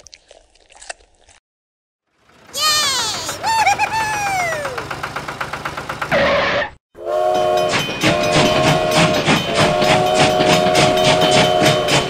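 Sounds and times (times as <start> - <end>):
toy train whistle: 7.0 - 12.0.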